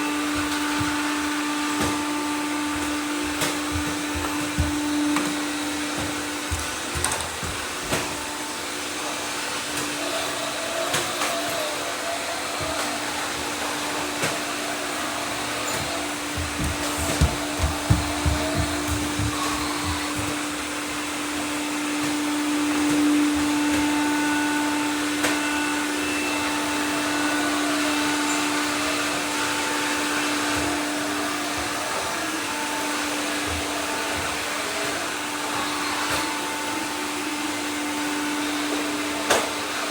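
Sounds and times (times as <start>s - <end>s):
robot vacuums humming: 0.0s - 39.9s
knocks: 3.3s - 8.1s, 15.8s - 20.5s.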